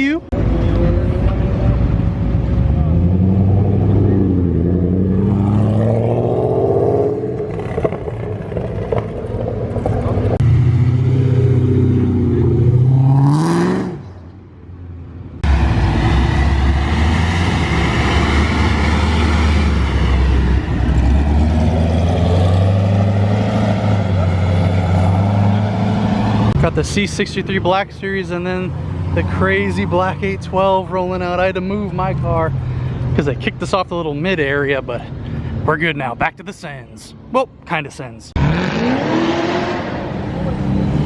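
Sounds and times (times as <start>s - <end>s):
performance car engines accelerating: 0.3s - 14.4s, 15.2s - 33.8s, 38.3s - 41.0s
car engine running loud: 15.4s - 31.2s.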